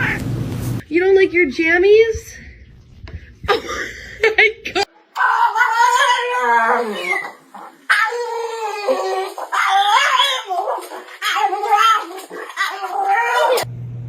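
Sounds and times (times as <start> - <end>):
dog whining and howling: 5.2 - 13.7.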